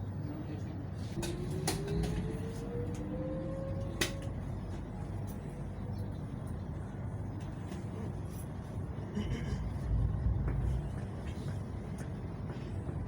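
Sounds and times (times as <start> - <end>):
electric train rumbling: 0.0 - 13.0
rising motor whine: 1.3 - 4.4.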